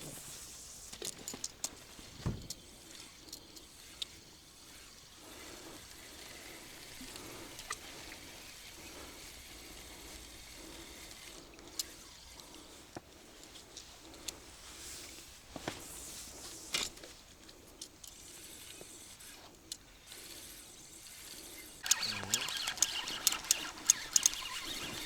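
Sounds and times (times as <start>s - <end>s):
dull thump: 2.1s - 2.6s.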